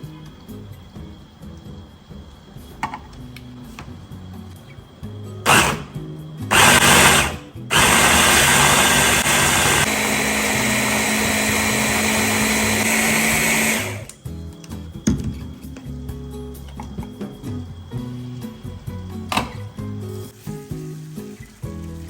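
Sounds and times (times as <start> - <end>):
electric blender motor: 5.5 - 14.2.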